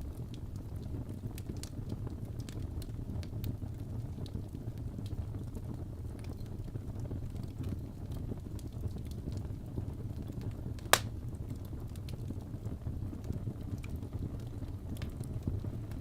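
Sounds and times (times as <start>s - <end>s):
wood fire crackling: 0.0s - 16.0s
loud sharp pop: 10.9s - 11.1s.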